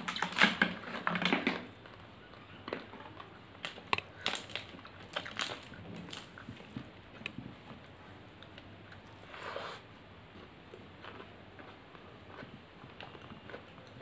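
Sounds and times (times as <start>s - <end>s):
wet chewing with mouth clicks: 1.2s - 14.0s.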